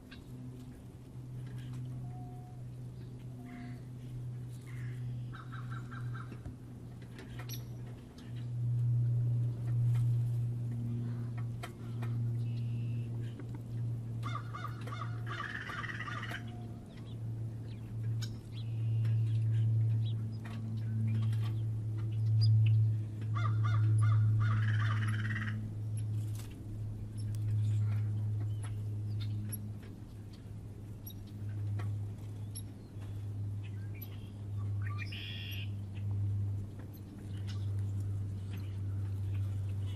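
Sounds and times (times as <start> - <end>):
steady low hum: 0.0 - 39.9
harsh bird calls: 14.2 - 17.2, 23.3 - 25.6.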